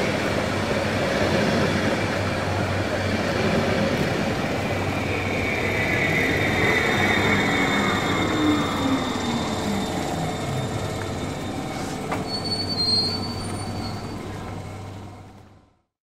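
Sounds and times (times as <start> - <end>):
train rolling on rails: 0.0 - 15.8
wheel squeal: 4.8 - 15.0.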